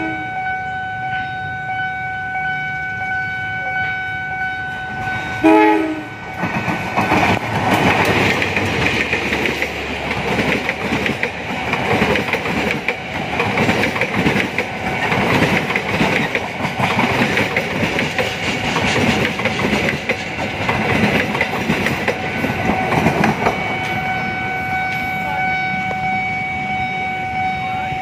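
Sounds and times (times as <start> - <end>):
steady high tone: 0.0 - 7.2, 22.0 - 28.0
train wheels clattering over rail joints: 6.4 - 24.0.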